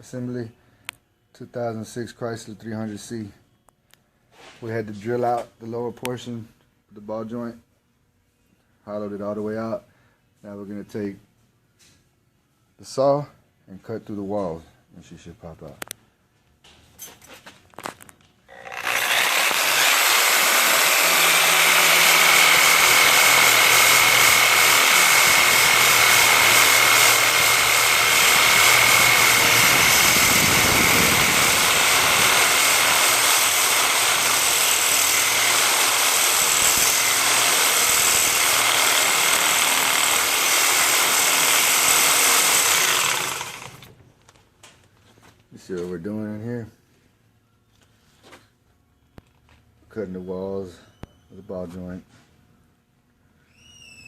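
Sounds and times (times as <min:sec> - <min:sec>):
reciprocating saw cutting steel: 0:18.5 - 0:43.9.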